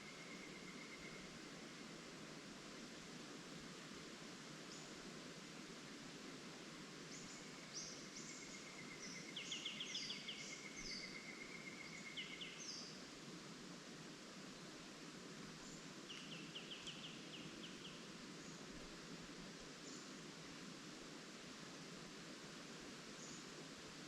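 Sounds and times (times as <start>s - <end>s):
leaves rustling in wind: 0.0s - 24.0s
small birds calling and singing: 7.1s - 13.0s, 15.6s - 18.7s.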